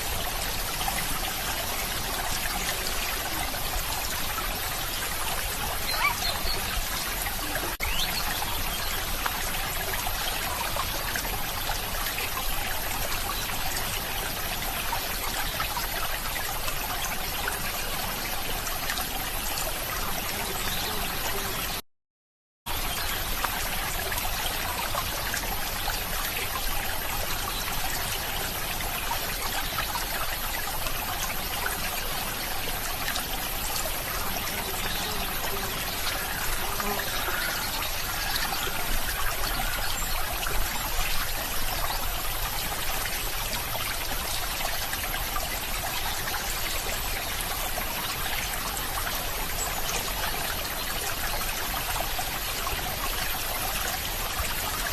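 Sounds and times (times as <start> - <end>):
water trickling: 22.7 - 54.9.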